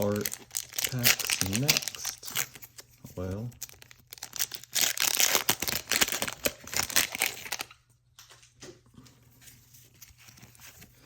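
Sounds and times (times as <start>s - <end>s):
foil wrapper crinkling and tearing: 0.0s - 7.8s
rustling of wrapper and cards: 0.0s - 7.8s, 9.4s - 11.0s.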